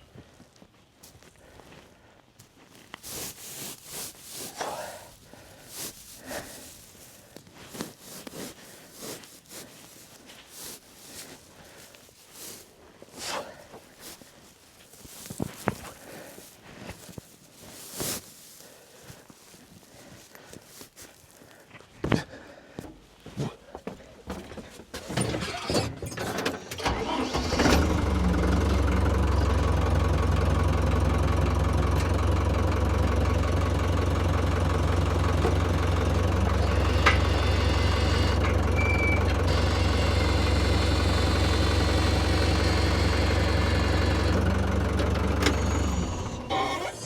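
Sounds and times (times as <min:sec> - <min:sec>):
tractor engine idling: 0:25.0 - 0:47.0.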